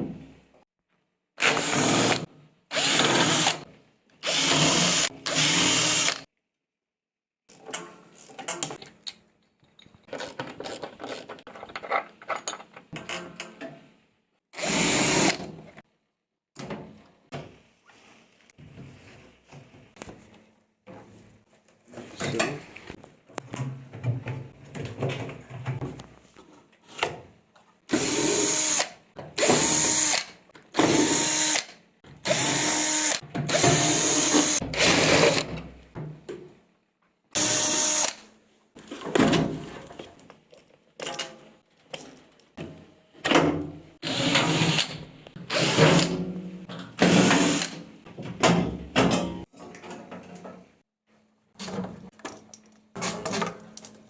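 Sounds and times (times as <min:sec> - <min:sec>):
electric drill-driver spinning: 0:02.8 - 0:03.6, 0:04.2 - 0:06.2, 0:14.6 - 0:15.4, 0:28.0 - 0:30.3, 0:30.9 - 0:31.7, 0:32.3 - 0:35.4, 0:37.4 - 0:38.2, 0:47.1 - 0:47.8
clattering handling sounds: 0:07.5 - 0:13.9.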